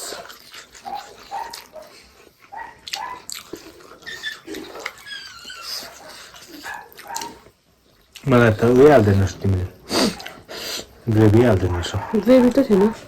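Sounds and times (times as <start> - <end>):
chewing with wet mouth smacks: 0.0 - 8.3, 10.2 - 10.5.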